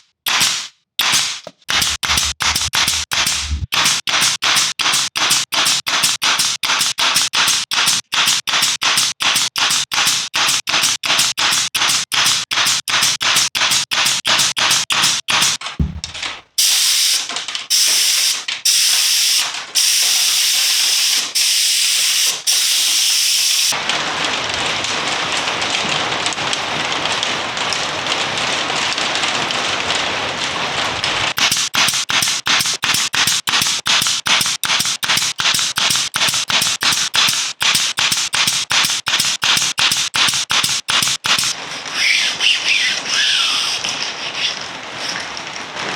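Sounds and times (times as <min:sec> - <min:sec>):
spray gun hissing: 0:01.7 - 0:12.7, 0:16.6 - 0:23.8, 0:31.4 - 0:44.6.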